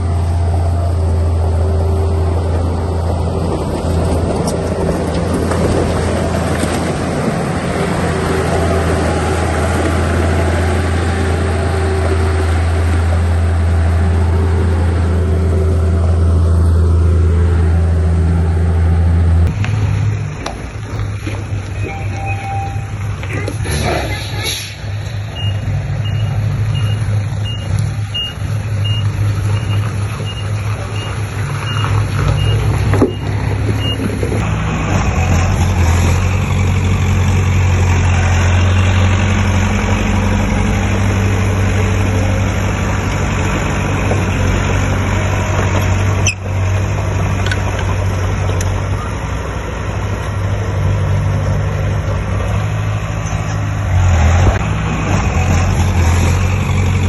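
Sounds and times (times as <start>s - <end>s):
heavy diesel engine running: 0.0s - 57.0s
reversing alarm beeping: 21.8s - 23.0s, 25.3s - 34.1s.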